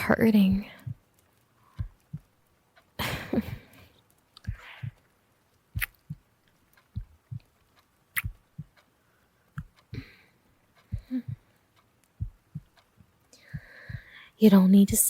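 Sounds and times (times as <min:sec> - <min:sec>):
slow heartbeat thumps: 0:00.0 - 0:14.2
quiet breaths: 0:00.5 - 0:02.4, 0:03.0 - 0:05.2, 0:08.6 - 0:15.0.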